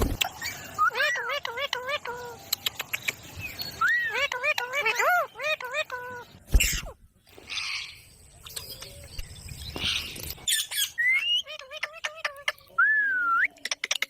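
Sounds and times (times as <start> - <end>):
parrot chirps clicks and whistles: 1.4 - 4.7, 12.0 - 14.0.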